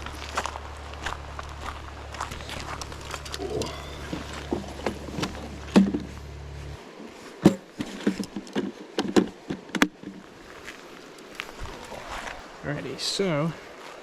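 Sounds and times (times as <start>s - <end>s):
low steady rumble: 0.0s - 7.9s
handling clicks and knocks: 2.3s - 6.2s, 7.4s - 10.3s.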